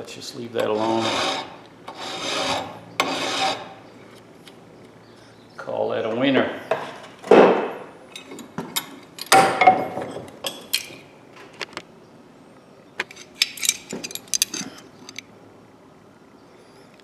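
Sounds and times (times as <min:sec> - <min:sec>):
metal tools clinking: 0:13.1 - 0:15.3.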